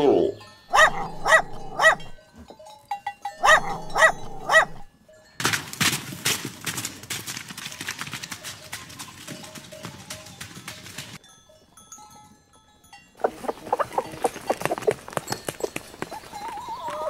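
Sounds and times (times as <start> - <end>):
dog barking: 0.7 - 2.2, 3.4 - 4.9
zebra rasping call: 0.7 - 2.2, 3.4 - 4.9.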